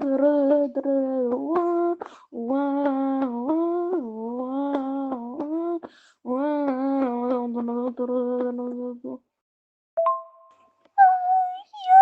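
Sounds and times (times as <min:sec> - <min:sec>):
person humming: 0:11.0 - 0:12.0.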